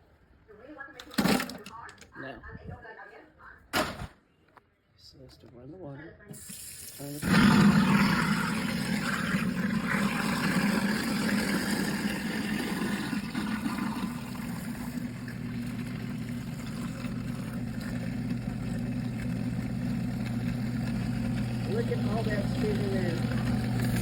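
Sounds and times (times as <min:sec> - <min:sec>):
garbage disposal grinding ice: 0:01.0 - 0:01.7, 0:06.5 - 0:24.0
tap water running: 0:06.4 - 0:24.0.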